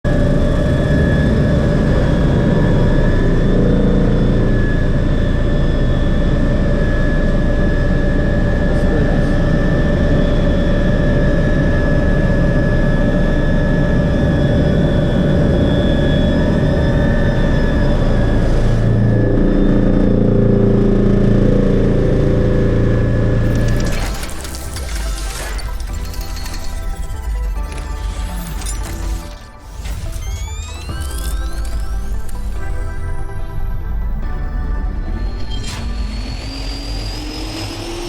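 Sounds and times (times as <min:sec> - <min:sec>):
helicopter rotor rumble: 0:00.1 - 0:38.0
helicopter turbine whine: 0:00.1 - 0:38.0.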